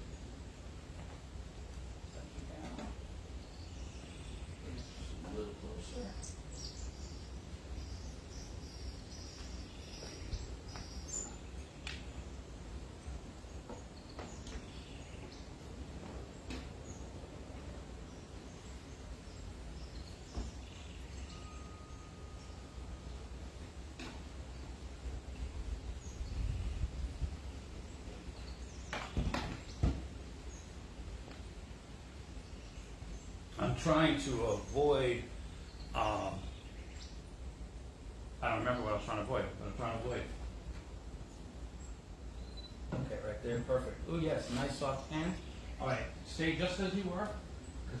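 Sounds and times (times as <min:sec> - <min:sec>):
wind rumble on microphone: 0:25.2 - 0:30.1.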